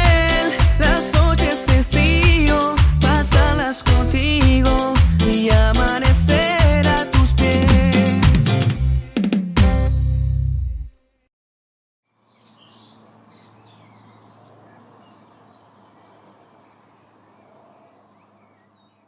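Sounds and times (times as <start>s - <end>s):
music: 0.0s - 11.0s
birds chirping: 12.2s - 19.0s.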